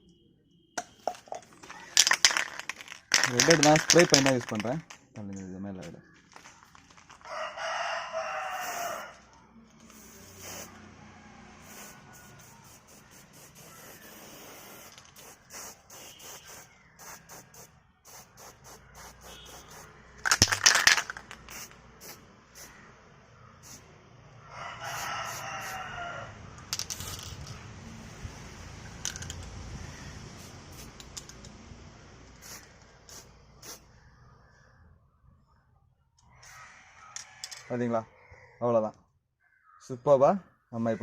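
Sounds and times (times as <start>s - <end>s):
spray can clicks and rattles: 0.8s - 5.4s, 6.3s - 7.3s, 9.8s - 10.7s, 11.7s - 22.7s, 26.7s - 27.6s, 28.9s - 29.5s, 30.4s - 31.6s, 32.3s - 33.8s
spray paint can hissing: 1.0s - 4.9s, 8.5s - 9.2s, 9.8s - 10.8s, 11.6s - 22.7s, 23.6s - 23.8s, 24.9s - 25.8s, 26.8s - 27.5s, 29.0s - 29.4s, 30.4s - 31.5s, 32.3s - 33.8s
rooster crowing: 7.2s - 9.3s, 10.7s - 12.8s, 24.4s - 26.5s, 36.4s - 38.4s.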